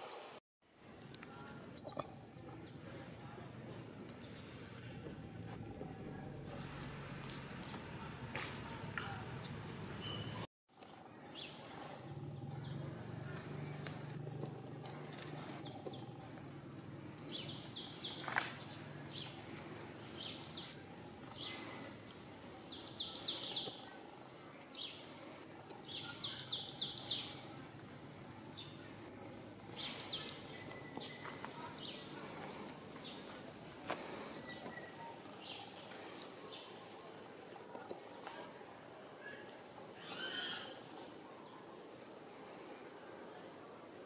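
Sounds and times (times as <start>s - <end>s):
outdoor background noise: 0.0s - 44.0s
birds chirping in rapid trills: 11.1s - 14.4s, 15.1s - 33.4s.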